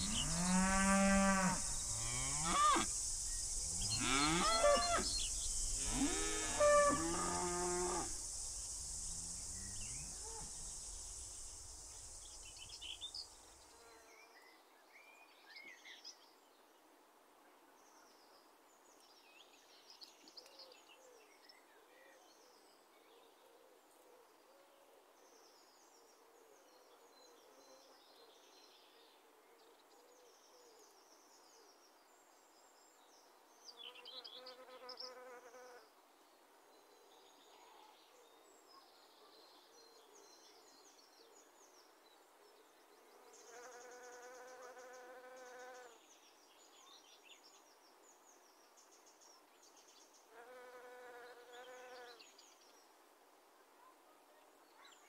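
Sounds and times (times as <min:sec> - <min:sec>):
fly buzzing past: 0:00.0 - 0:12.9, 0:34.3 - 0:35.9, 0:43.4 - 0:46.0, 0:50.3 - 0:52.2
small birds chirping: 0:00.0 - 0:13.8.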